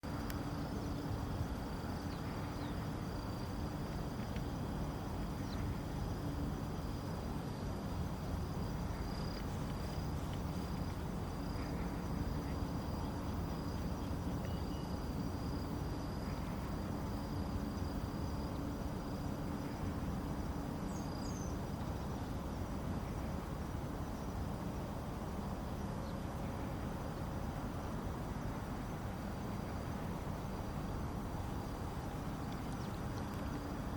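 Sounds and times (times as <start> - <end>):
low outdoor rumble: 0.0 - 33.9
high-pitched insect trill: 0.1 - 22.7.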